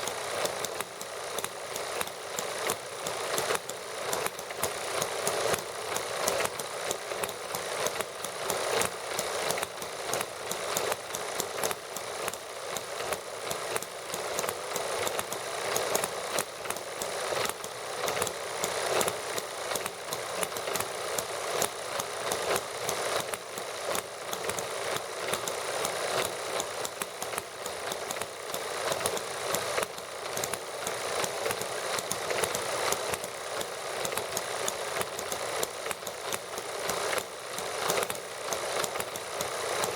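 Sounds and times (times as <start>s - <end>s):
model engines running: 0.0s - 39.9s.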